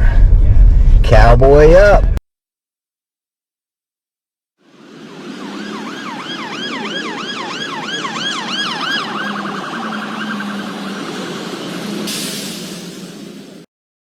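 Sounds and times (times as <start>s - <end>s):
emergency siren yelping: 4.7s - 13.6s.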